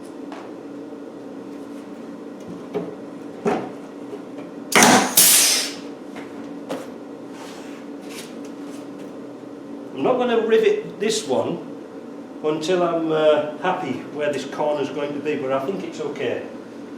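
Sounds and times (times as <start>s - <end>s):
steady low hum: 4.6s - 6.1s.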